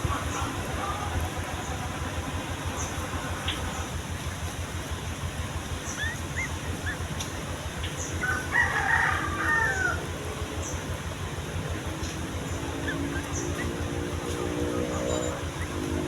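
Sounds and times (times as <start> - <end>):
steady low hum: 0.0 - 16.0
rooster crowing: 8.2 - 10.2.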